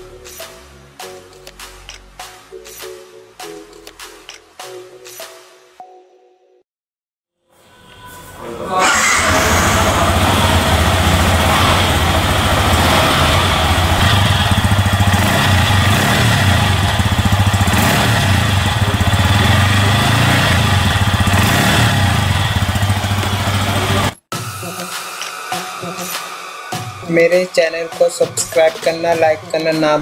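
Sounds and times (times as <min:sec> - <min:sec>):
motorcycle engine idling: 0:09.2 - 0:24.2.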